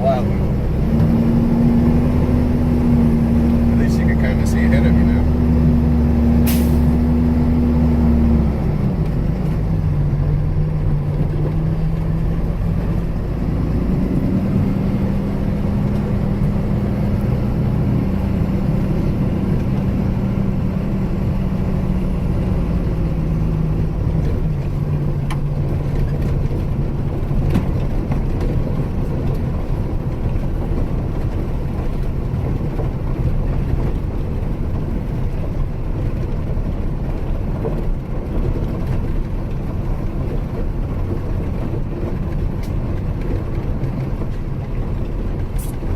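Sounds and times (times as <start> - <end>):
truck engine running: 0.0 - 45.9.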